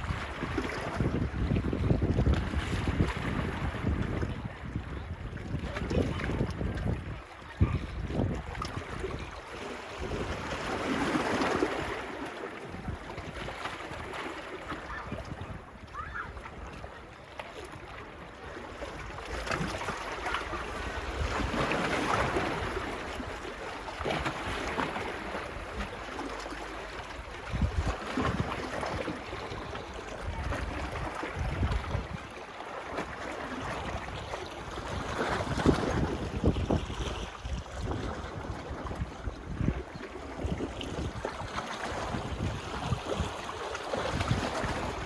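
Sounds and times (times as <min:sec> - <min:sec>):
wind buffeting microphone: 0:00.0 - 0:12.0, 0:14.9 - 0:16.9, 0:27.1 - 0:45.0
small waves washing onto beach: 0:00.0 - 0:45.0.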